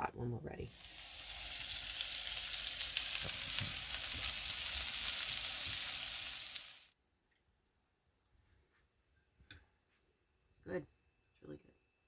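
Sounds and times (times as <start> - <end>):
potatoes and onions sizzling in a pan: 0.6 - 6.9.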